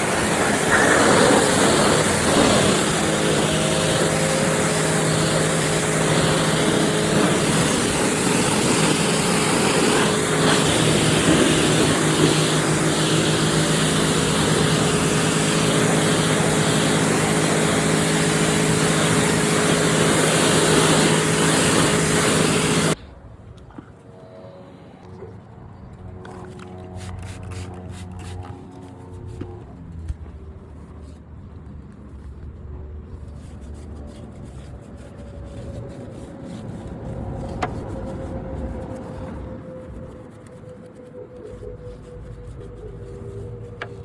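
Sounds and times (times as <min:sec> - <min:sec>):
pressure washer pump humming: 0:00.0 - 0:23.0
water spray hissing: 0:00.0 - 0:23.0.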